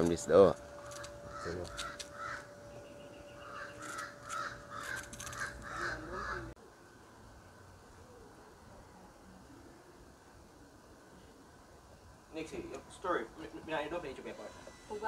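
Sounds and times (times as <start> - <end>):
harsh bird calls: 0.7 - 6.6.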